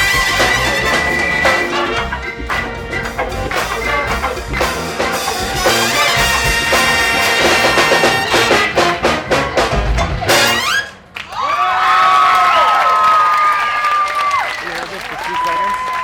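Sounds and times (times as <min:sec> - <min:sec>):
big band playing funk: 0:00.0 - 0:11.2
crowd cheering and whooping: 0:09.6 - 0:16.0.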